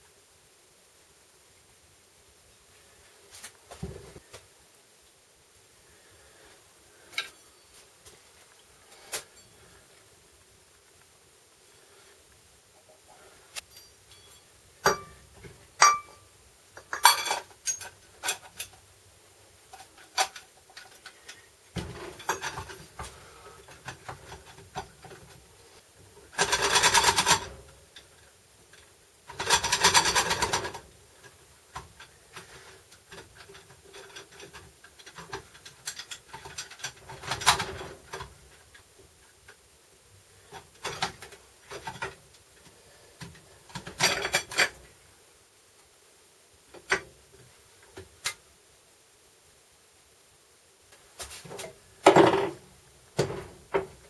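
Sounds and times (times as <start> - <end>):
tools and metal parts clinking: 13.7 - 15.2, 16.8 - 18.8, 21.8 - 22.9, 26.3 - 27.6, 33.1 - 38.4, 43.7 - 44.8.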